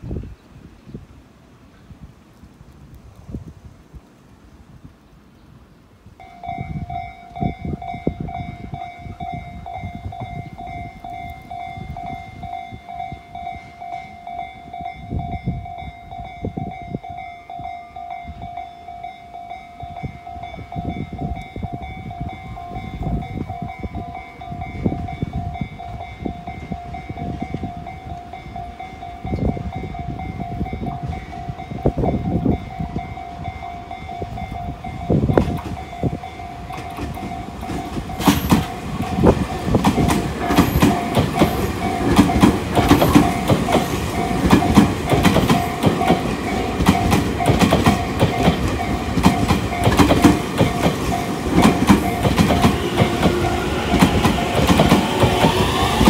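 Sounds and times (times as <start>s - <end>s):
electric train approaching: 6.1s - 56.0s
high ringing tone: 6.2s - 56.0s
low rumbling gusts: 19.7s - 56.0s.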